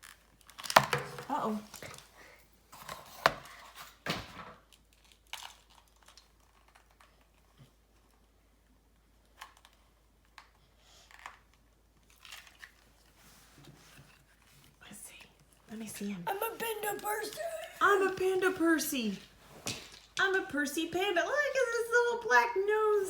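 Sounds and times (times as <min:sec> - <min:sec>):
small clicks and rustles: 0:00.0 - 0:16.2
packaging tearing and crinkling: 0:04.7 - 0:07.2, 0:12.1 - 0:13.0.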